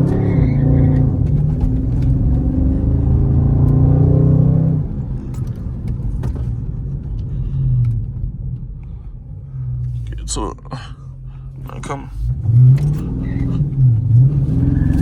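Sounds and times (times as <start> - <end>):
car engine accelerating hard: 0.0 - 7.2, 12.2 - 15.0.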